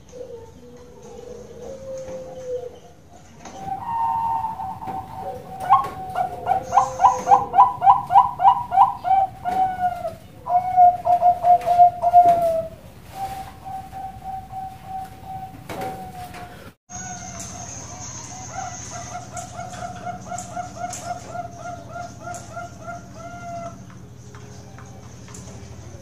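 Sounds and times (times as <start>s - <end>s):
dove cooing: 0.0s - 2.9s, 3.5s - 16.7s, 18.2s - 24.0s.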